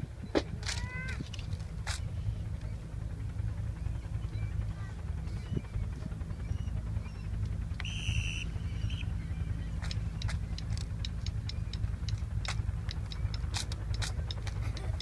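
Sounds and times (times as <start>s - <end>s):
low outdoor rumble: 0.0s - 15.0s
sharp irregular clicks: 0.4s - 2.7s, 9.7s - 15.0s.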